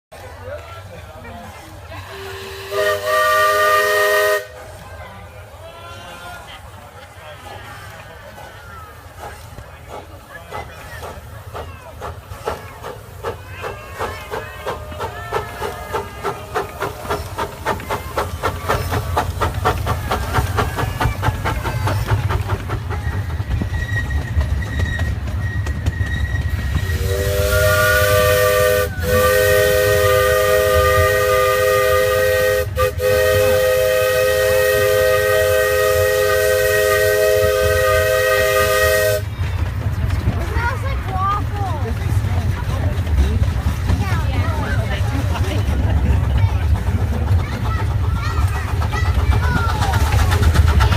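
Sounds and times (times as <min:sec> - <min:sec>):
steam locomotive chuffing: 0:01.0 - 0:05.6, 0:06.3 - 0:50.9.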